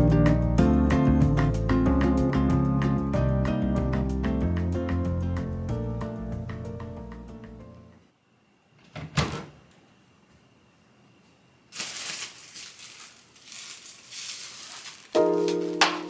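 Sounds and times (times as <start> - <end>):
background music: 0.0 - 8.0, 15.2 - 16.0.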